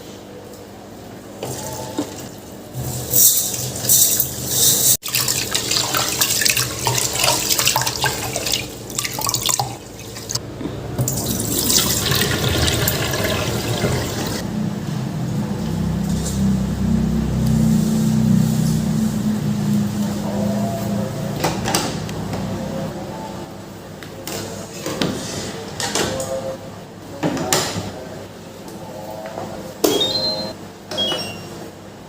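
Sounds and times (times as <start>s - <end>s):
tap water running and splashing: 5.0s - 10.4s, 11.0s - 14.4s.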